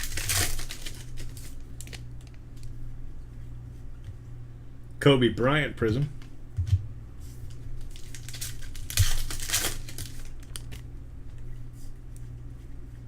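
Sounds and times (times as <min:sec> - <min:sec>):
plastic wrappers crinkling and tearing: 0:00.0 - 0:02.7, 0:07.4 - 0:10.9.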